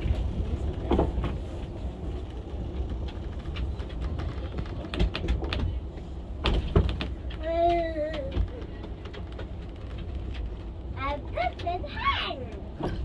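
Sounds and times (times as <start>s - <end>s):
railway car rumbling on track: 0.0s - 13.0s
sharp clicks and knocks: 2.8s - 10.7s.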